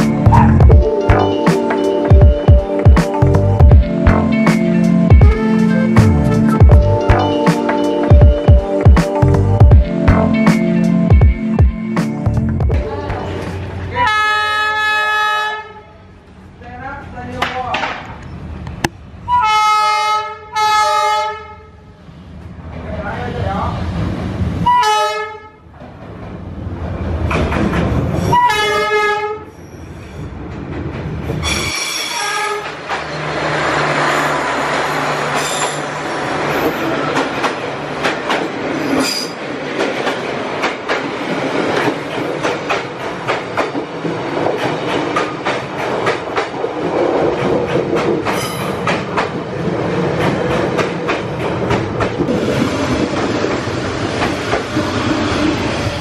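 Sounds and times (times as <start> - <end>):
train carriages rumbling past: 0.0 - 20.8, 21.8 - 56.0
train horn: 14.0 - 16.1, 19.3 - 21.8, 24.6 - 25.6, 28.3 - 29.5, 31.4 - 32.7
wheels clacking over rails: 27.1 - 28.4, 32.6 - 55.9.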